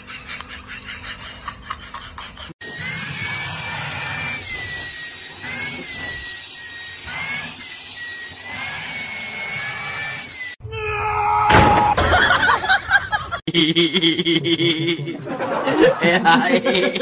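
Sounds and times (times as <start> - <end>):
vacuum cleaner whining: 2.6 - 10.6.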